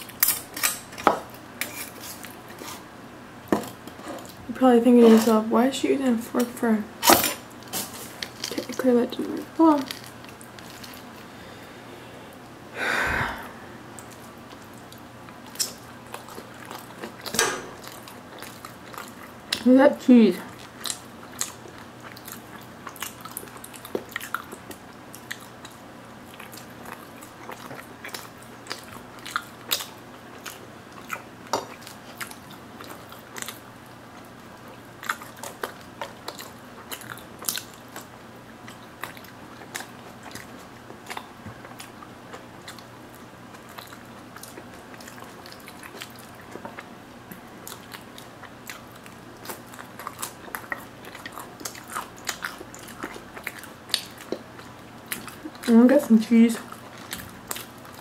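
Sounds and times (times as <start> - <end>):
crunchy biting and chewing: 20.5 - 55.8, 56.6 - 58.0.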